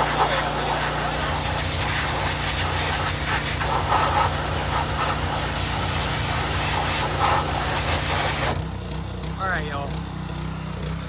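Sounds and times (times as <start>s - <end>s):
pressure washer jet hissing: 0.0s - 8.6s
washer engine running: 0.0s - 11.0s.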